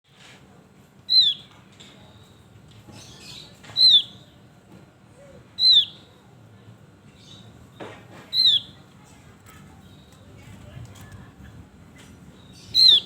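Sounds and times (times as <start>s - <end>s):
faint bird chirps: 5.2s - 6.3s, 8.3s - 8.8s, 12.3s - 13.0s.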